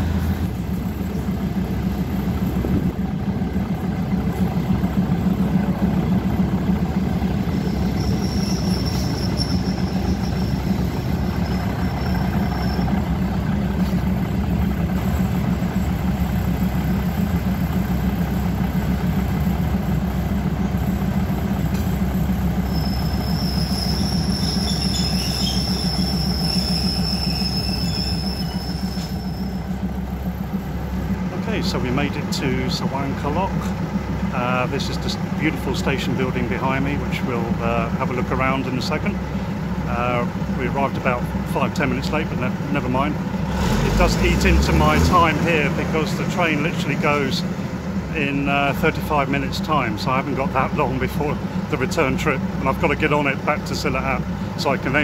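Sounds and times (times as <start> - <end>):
train rumbling along rails: 0.0 - 55.0
high wheel squeal: 3.6 - 17.7, 20.6 - 30.4.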